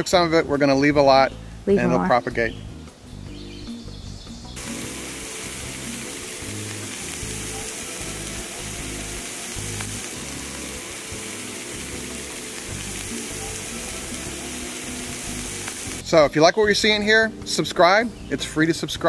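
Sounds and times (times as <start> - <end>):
background music: 0.0 - 19.0
mushrooms sizzling in a frying pan: 4.6 - 16.2.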